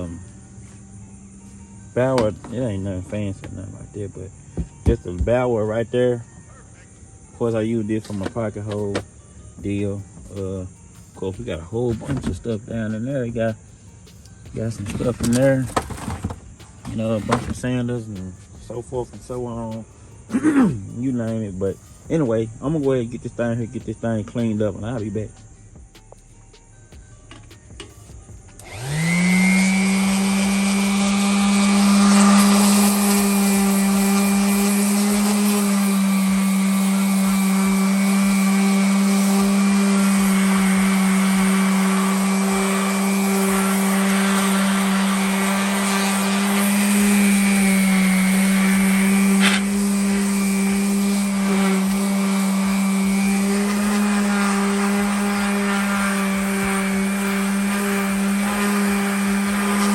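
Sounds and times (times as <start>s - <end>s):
electric power tool running: 0.0s - 5.7s, 14.2s - 19.6s, 28.5s - 59.9s.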